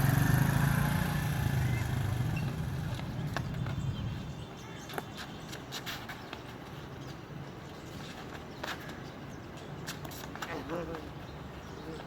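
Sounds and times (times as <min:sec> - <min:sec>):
motorcycle engine running: 0:00.0 - 0:04.0.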